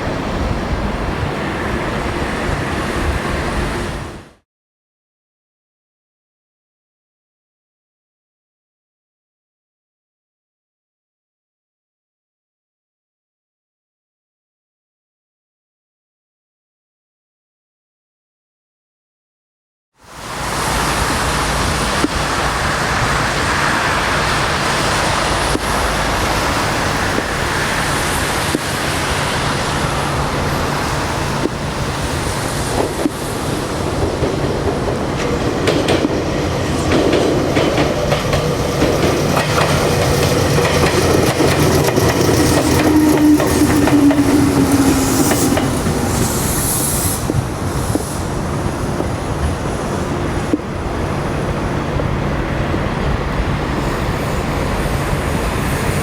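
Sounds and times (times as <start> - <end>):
train wheels clacking over rail joints: 24.1 - 51.2.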